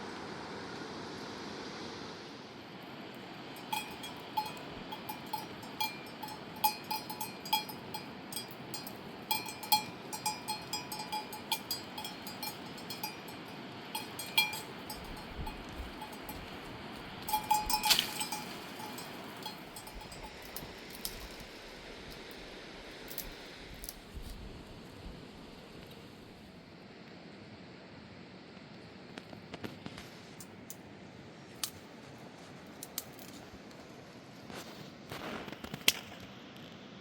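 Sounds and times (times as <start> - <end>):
small metal bells clinking: 3.6 - 21.5.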